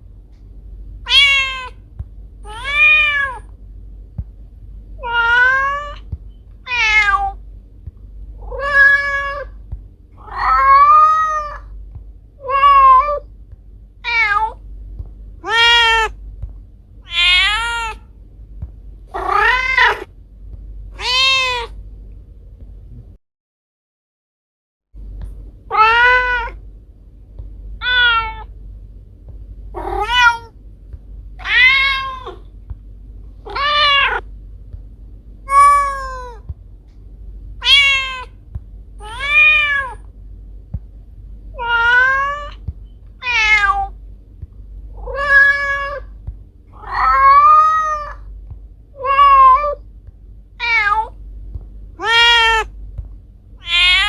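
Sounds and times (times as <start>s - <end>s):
faint low hum: 0.0s - 23.2s, 25.0s - 54.0s
cat meowing: 1.0s - 1.8s, 2.5s - 3.4s, 5.0s - 6.0s, 6.6s - 7.4s, 8.4s - 9.6s, 10.2s - 11.7s, 12.4s - 13.3s, 14.0s - 14.6s, 15.4s - 16.2s, 17.1s - 18.0s, 19.1s - 20.1s, 21.0s - 21.8s, 25.7s - 26.6s, 27.8s - 28.5s, 29.8s - 30.5s, 31.4s - 32.4s, 33.4s - 34.2s, 35.5s - 36.4s, 37.6s - 38.4s, 39.0s - 40.0s, 41.6s - 42.6s, 43.2s - 43.9s, 45.0s - 46.1s, 46.8s - 48.3s, 49.0s - 49.8s, 50.6s - 51.2s, 52.0s - 52.7s, 53.6s - 54.0s.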